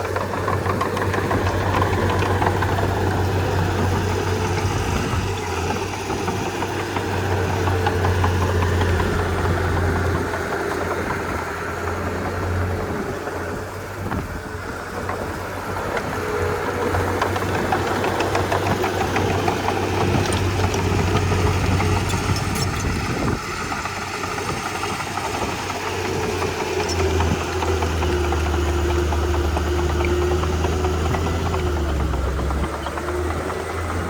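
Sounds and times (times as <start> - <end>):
bulldozer diesel engine running: 0.0 - 34.0.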